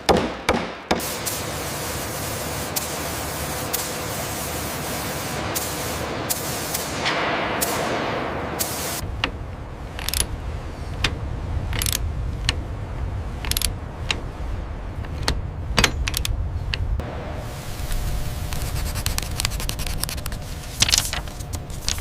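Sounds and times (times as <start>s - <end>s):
low rumble: 7.2s - 22.0s.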